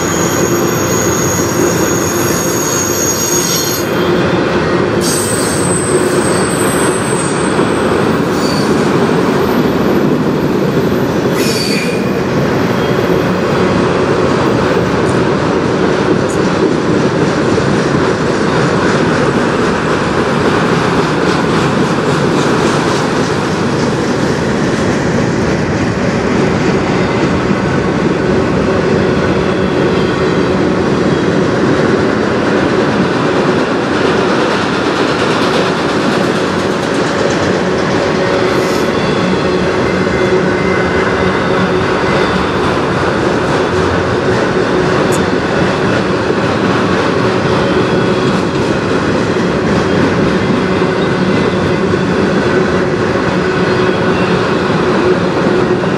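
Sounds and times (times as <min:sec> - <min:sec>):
wheel squeal: 0:00.0 - 0:04.2
freight train rumbling past: 0:00.0 - 0:55.9.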